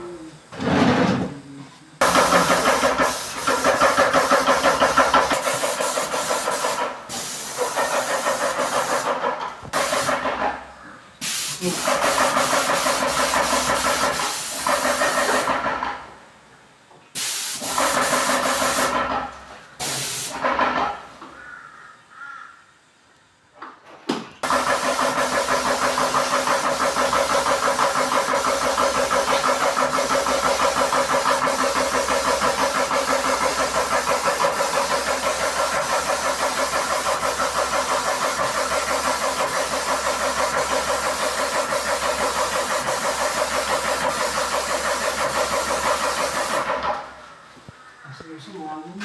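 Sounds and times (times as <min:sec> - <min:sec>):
paint sprayer pump pulsing: 0:02.0 - 0:10.4, 0:11.5 - 0:15.7, 0:17.6 - 0:19.1, 0:24.4 - 0:47.1.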